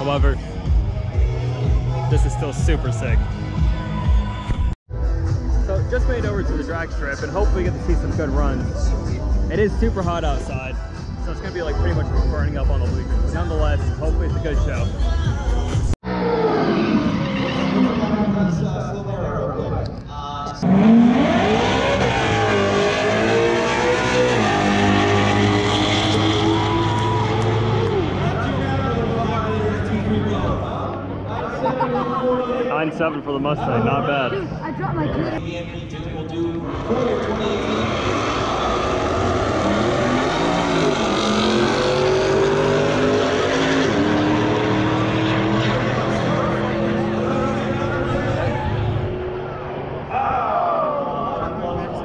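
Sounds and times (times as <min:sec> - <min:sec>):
drag racing cars accelerating: 0:16.1 - 0:19.7, 0:20.5 - 0:31.4, 0:35.5 - 0:50.1.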